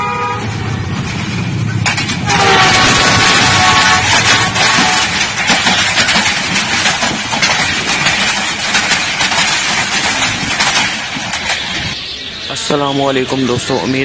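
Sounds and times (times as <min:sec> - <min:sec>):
train horn: 0:00.0 - 0:00.8, 0:02.2 - 0:05.3
train passing at speed: 0:00.0 - 0:14.0.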